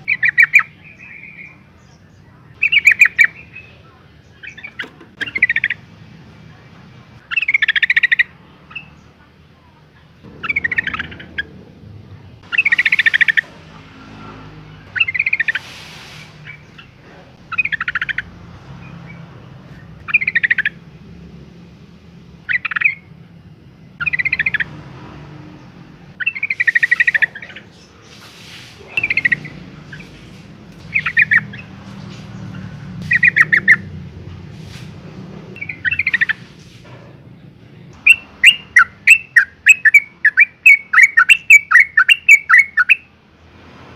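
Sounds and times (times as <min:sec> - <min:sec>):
bird chattering call: 0:00.0 - 0:01.6, 0:02.6 - 0:05.8, 0:07.2 - 0:09.0, 0:10.2 - 0:11.6, 0:12.4 - 0:13.6, 0:14.9 - 0:18.4, 0:20.0 - 0:20.8, 0:22.4 - 0:23.1, 0:24.0 - 0:24.8, 0:26.2 - 0:31.8, 0:32.4 - 0:33.9, 0:35.6 - 0:36.5, 0:38.0 - 0:43.1.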